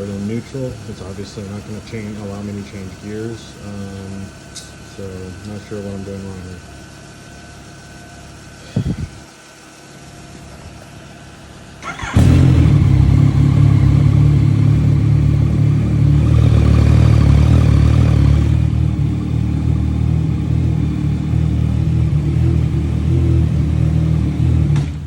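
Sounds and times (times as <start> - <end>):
motorcycle starter burst: 11.8 - 14.6
motorcycle engine idling: 11.8 - 25.0.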